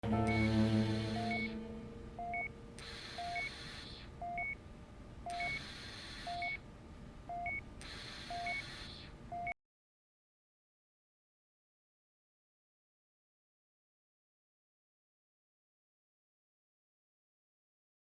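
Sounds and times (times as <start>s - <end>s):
two-tone electronic beeping: 0.0s - 2.6s, 3.2s - 3.6s, 4.2s - 4.6s, 5.3s - 5.6s, 6.3s - 6.6s, 8.3s - 8.7s
breathy hiss: 2.7s - 4.2s, 5.3s - 6.6s, 7.8s - 9.2s.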